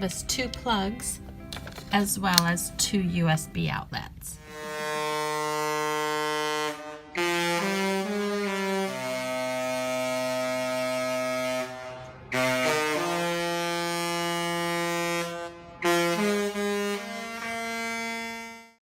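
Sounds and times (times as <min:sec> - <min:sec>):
wind instrument melody: 0:04.4 - 0:18.8.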